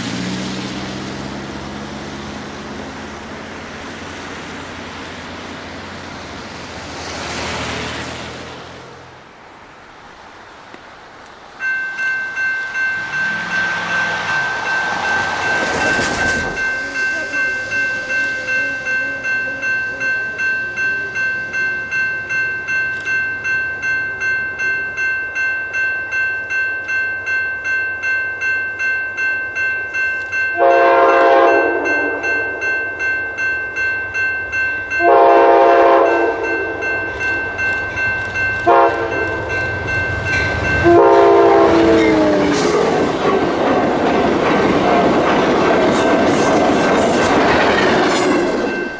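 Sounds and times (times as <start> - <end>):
approaching train rumble: 0.0 - 48.9
crossing bell ringing: 11.4 - 48.9
locomotive horn blasts: 13.0 - 20.4, 30.6 - 32.6, 35.0 - 37.0, 38.6 - 39.6, 40.8 - 42.6.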